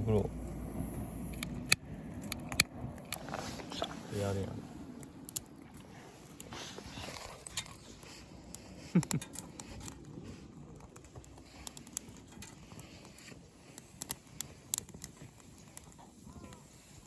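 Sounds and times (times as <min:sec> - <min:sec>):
twigs crackling and snapping: 0:04.8 - 0:16.9.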